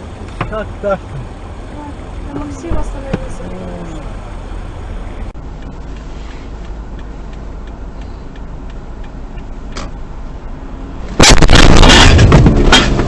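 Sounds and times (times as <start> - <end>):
car road rumble: 0.0 - 13.0
faint ticks: 5.5 - 9.9.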